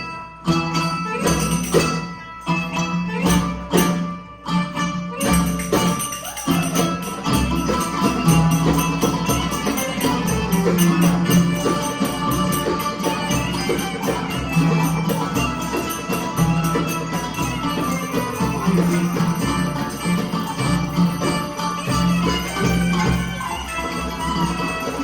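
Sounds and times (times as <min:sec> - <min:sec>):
live band playing instrumental: 0:02.8 - 0:25.0
tambourine-like jingling: 0:05.2 - 0:25.0.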